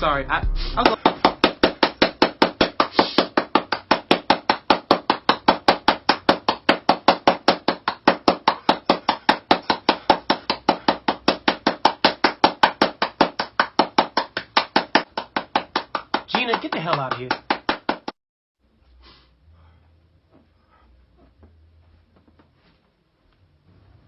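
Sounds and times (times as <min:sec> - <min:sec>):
rapid chopping knocks: 0:00.8 - 0:18.2.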